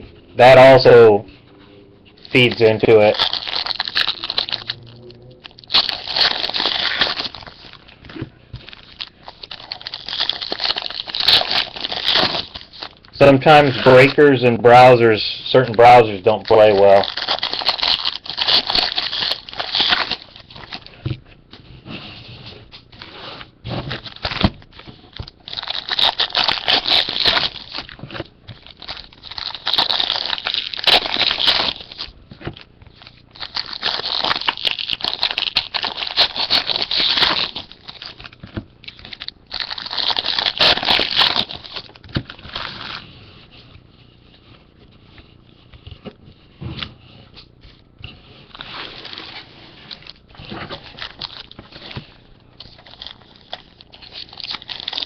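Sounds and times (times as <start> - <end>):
foil wrappers tearing and crinkling: 2.2 - 4.8, 5.4 - 7.9, 8.6 - 20.9, 23.9 - 43.1, 48.5 - 55.0.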